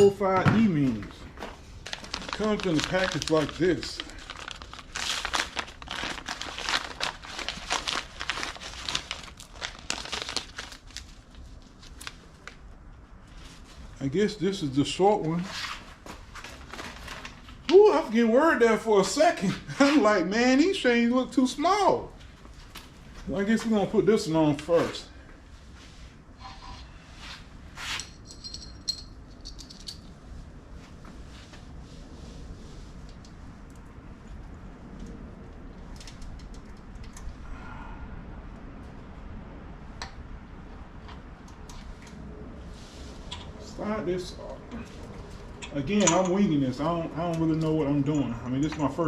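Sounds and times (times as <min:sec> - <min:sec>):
packaging crinkling and rustling: 0:01.7 - 0:12.6, 0:16.0 - 0:17.8
metal chain scraping: 0:27.9 - 0:30.1
metal chain clinking and rattling: 0:28.0 - 0:30.1.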